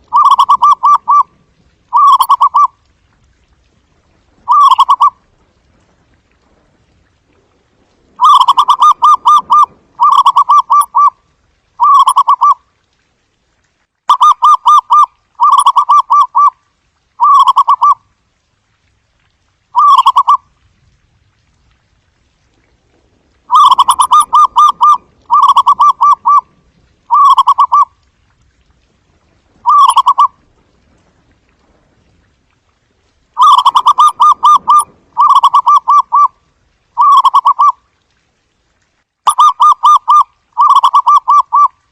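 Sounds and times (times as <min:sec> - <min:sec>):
dove trilled cooing: 0:00.0 - 0:02.7, 0:04.5 - 0:05.2, 0:08.2 - 0:11.2, 0:11.8 - 0:12.6, 0:14.2 - 0:16.5, 0:19.8 - 0:20.4, 0:23.5 - 0:26.5, 0:27.1 - 0:27.9, 0:29.6 - 0:30.3, 0:33.4 - 0:36.3, 0:37.0 - 0:37.7.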